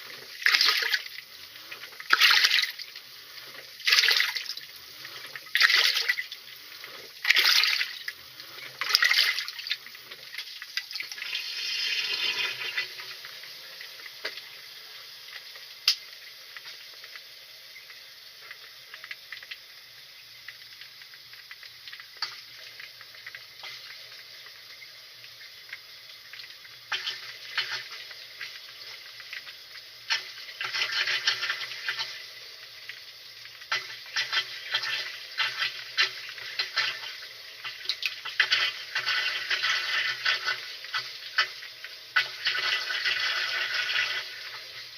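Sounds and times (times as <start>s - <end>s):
water trickling: 0.0s - 44.9s
water sloshing in washing machine: 0.4s - 1.2s, 2.0s - 2.8s, 3.5s - 4.7s, 5.3s - 6.4s, 7.2s - 8.1s, 8.8s - 12.8s.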